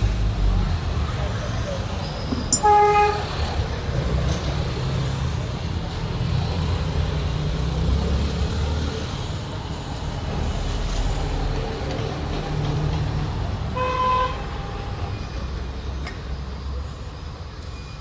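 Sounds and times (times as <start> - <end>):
vehicle engines rumbling: 0.0 - 18.0
short horn beep: 2.6 - 3.3.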